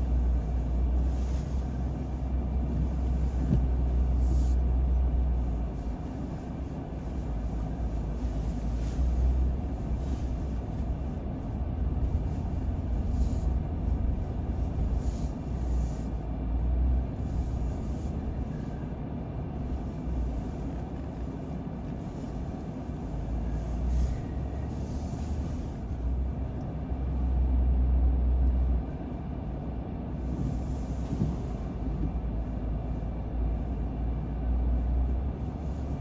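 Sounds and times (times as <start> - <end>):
car driving from inside cabin: 0.0 - 36.0.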